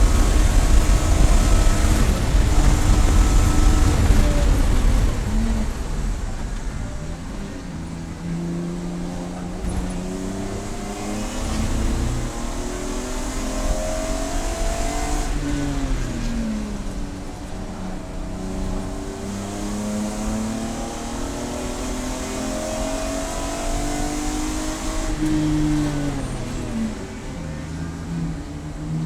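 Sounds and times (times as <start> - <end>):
race car engine at full throttle: 0.0 - 29.0.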